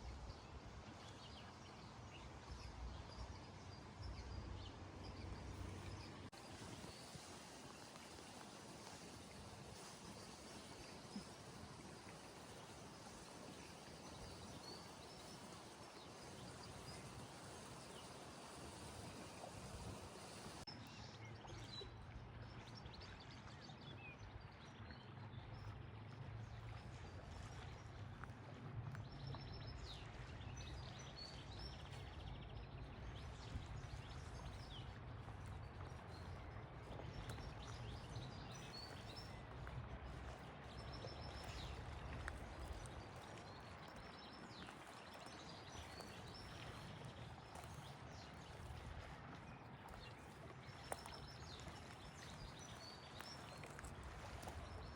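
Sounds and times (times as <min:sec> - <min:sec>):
steady hiss: 0:06.3 - 0:20.7.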